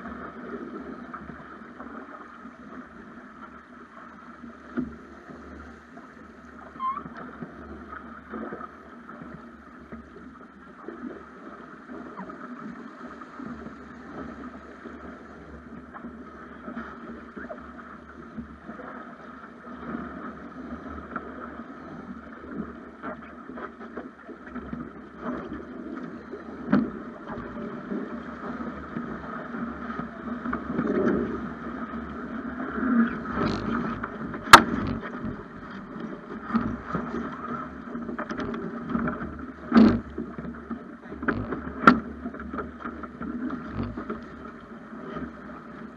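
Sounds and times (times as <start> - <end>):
water rushing along boat hull: 0.0 - 45.9
boat knocks and clicks: 4.5 - 10.2, 22.5 - 45.9.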